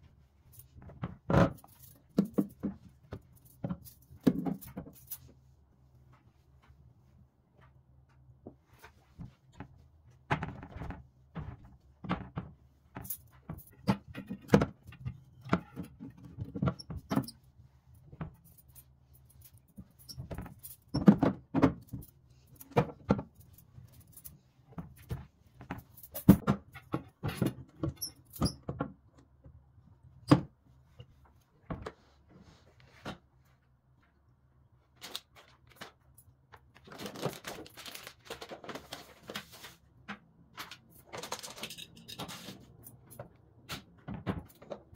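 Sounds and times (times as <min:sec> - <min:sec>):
household objects clattering: 0:36.8 - 0:44.9.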